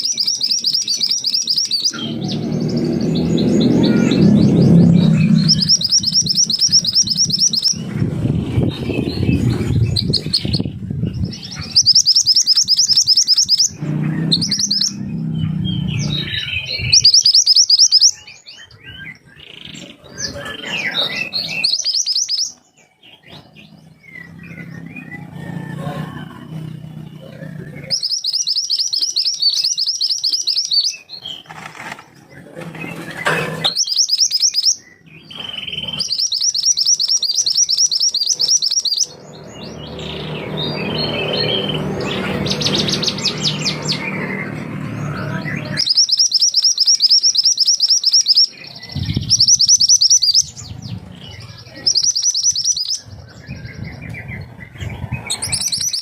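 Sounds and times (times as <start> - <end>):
songbird singing trilled notes: 0.0 - 25.4, 26.4 - 31.5, 33.7 - 56.0
low rumbling noise: 1.9 - 12.0, 13.6 - 17.2.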